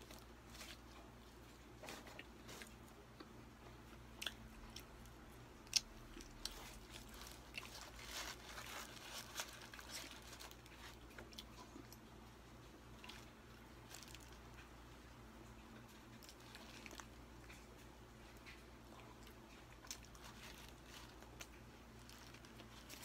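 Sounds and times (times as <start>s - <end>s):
person biting and chewing: 4.0s - 12.0s.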